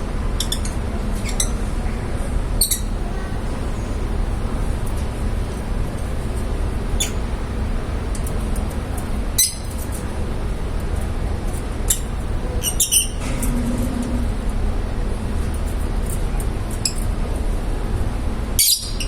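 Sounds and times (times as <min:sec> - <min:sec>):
low background rumble: 0:00.0 - 0:18.6
birds chirping: 0:11.9 - 0:15.1.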